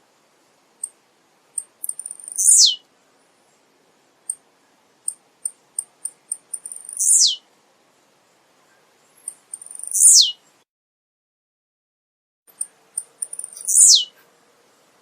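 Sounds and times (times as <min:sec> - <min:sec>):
bird singing: 0:01.6 - 0:02.8, 0:05.8 - 0:07.4, 0:09.0 - 0:10.6, 0:12.5 - 0:14.2.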